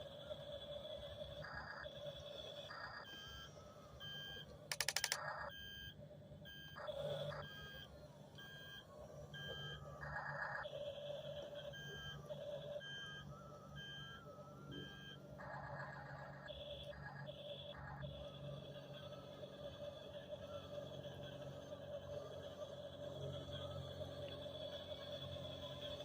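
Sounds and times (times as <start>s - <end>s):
toy reversing alarm beeps: 0.1s - 26.0s
rapid clicking: 4.7s - 5.2s.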